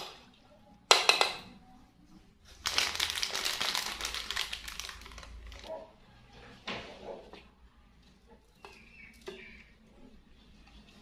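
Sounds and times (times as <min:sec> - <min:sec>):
plastic packaging crinkling: 0:02.5 - 0:05.7.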